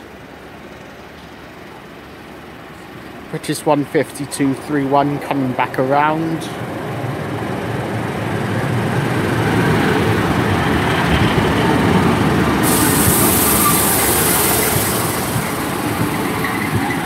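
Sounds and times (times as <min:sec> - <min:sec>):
diesel train running noise: 0:00.0 - 0:17.0
loud high hiss: 0:12.6 - 0:17.0.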